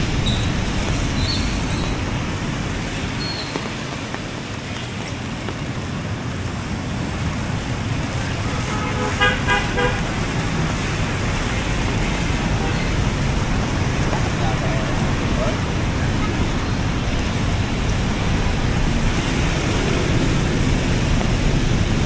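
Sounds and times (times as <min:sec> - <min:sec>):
road traffic noise: 0:00.0 - 0:22.0
vehicle horn honking: 0:08.4 - 0:10.2.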